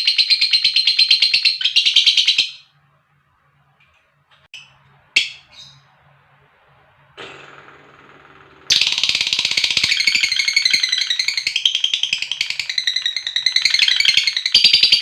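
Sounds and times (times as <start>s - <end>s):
low noisy sound: 2.7s - 9.9s
lovebird chattering trill: 8.7s - 15.0s.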